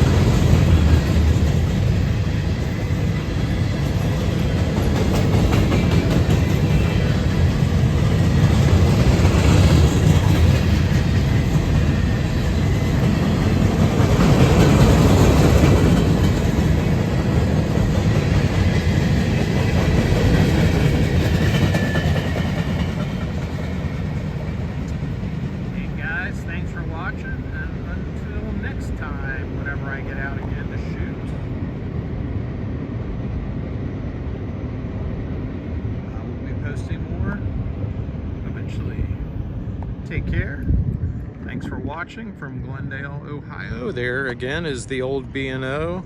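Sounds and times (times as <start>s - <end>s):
freight train rumbling past: 0.0s - 46.0s.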